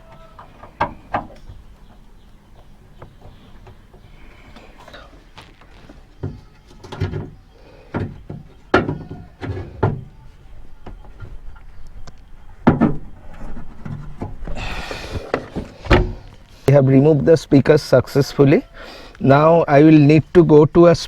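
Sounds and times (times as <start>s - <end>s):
knocks and plastic clatters: 0.0s - 2.0s, 3.0s - 10.2s, 10.8s - 16.6s.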